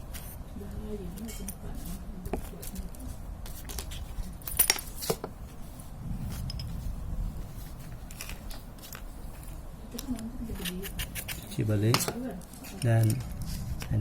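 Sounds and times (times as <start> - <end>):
light metal scraping: 1.2 - 9.7.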